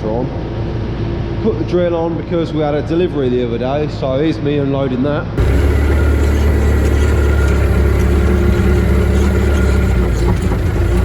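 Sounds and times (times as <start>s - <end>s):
farm machine engine running: 5.4s - 11.0s.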